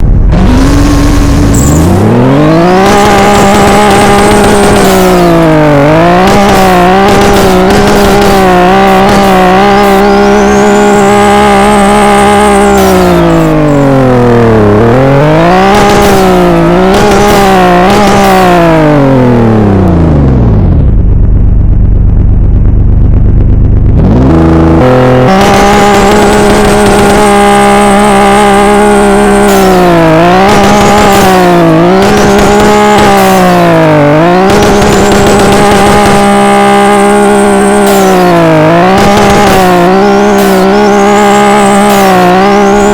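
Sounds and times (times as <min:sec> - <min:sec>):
exhaust pops: 0:00.0 - 0:10.3, 0:20.0 - 0:42.9
car engine revving: 0:00.0 - 0:42.9.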